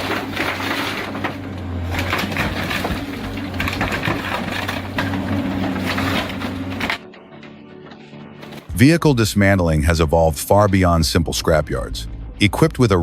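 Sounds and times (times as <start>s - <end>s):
waste crunching and cracking: 0.0s - 7.0s
shredder engine hum: 0.0s - 7.1s.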